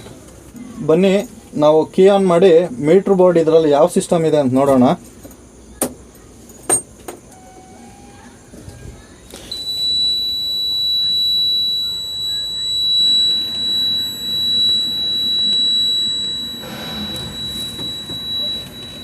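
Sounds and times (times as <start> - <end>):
high-pitched warning buzzer beep: 9.4 - 19.0.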